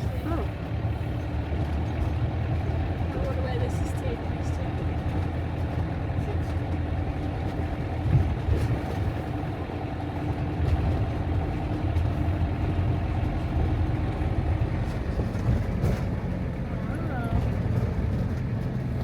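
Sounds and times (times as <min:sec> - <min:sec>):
motorhome engine droning: 0:00.0 - 0:19.0.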